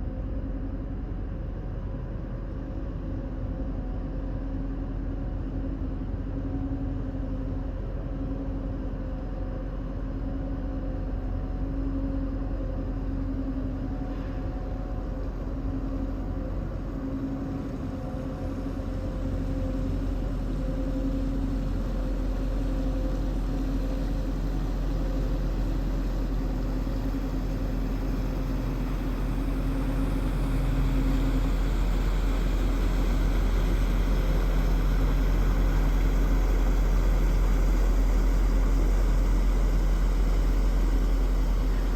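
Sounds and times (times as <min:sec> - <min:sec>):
heavy engine idling: 0:19.1 - 0:41.9.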